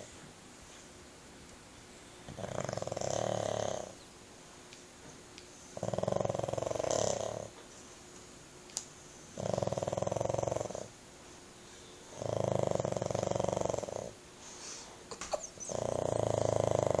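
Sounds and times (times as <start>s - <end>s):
dog snoring loudly: 2.3s - 4.0s, 5.8s - 7.6s, 9.4s - 11.0s, 12.1s - 14.2s, 15.5s - 17.0s.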